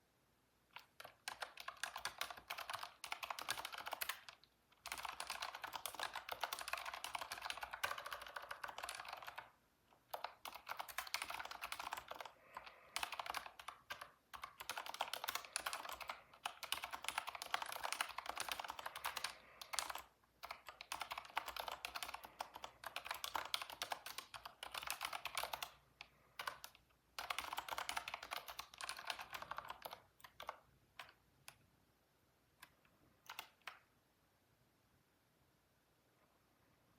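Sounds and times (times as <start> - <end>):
typing on computer keyboard: 0.7 - 31.6, 32.6 - 33.9.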